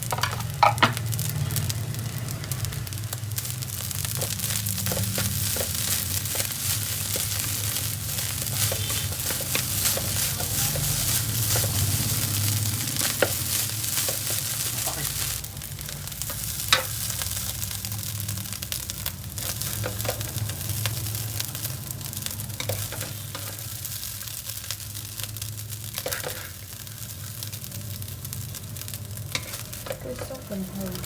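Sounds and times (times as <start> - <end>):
rice sizzling in a hot pan: 0.0 - 31.0
spatula scraping a pan: 4.2 - 15.0, 26.0 - 26.6, 29.3 - 30.4.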